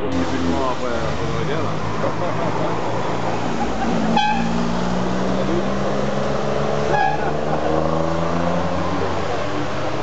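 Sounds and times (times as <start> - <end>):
car engine: 0.0 - 10.0
approaching car engine rising: 0.2 - 10.0
short high horn toots: 4.2 - 4.6, 6.9 - 7.2.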